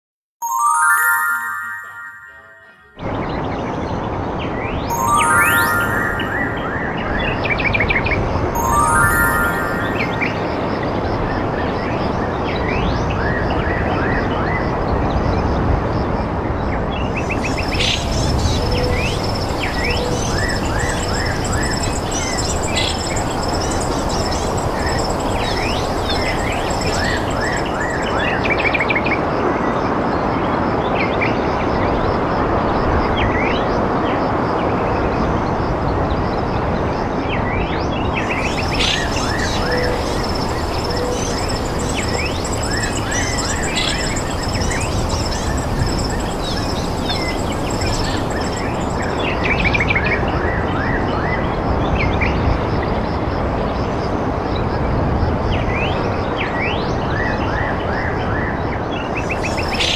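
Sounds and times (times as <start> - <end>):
birds chirping: 17.2 - 28.4, 38.1 - 49.4
loud steady rushing noise: 38.0 - 49.4.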